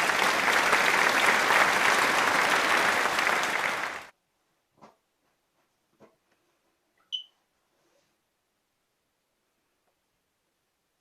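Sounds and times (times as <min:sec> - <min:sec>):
hands clapping: 0:00.0 - 0:04.1.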